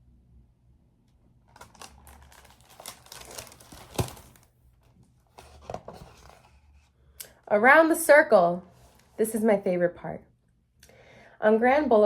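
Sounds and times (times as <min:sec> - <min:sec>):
paper rustling and crinkling: 0:01.5 - 0:06.9.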